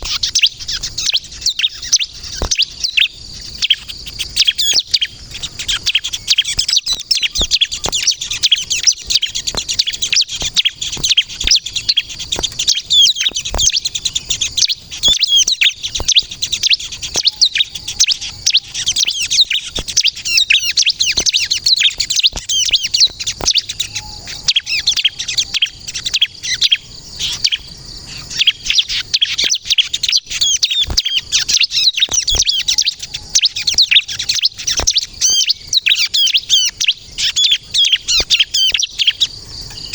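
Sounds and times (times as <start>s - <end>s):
bird chirping and trilling: 0.0s - 39.9s
sharp clicks: 3.6s - 17.2s.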